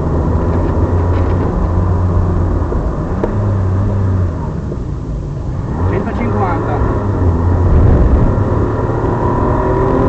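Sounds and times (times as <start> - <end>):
car engine running hard: 0.0 - 10.0
road noise: 0.0 - 10.0.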